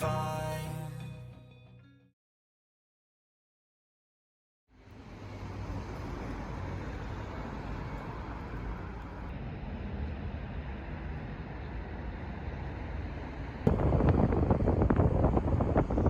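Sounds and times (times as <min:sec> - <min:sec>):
low rumble: 0:13.6 - 0:16.0.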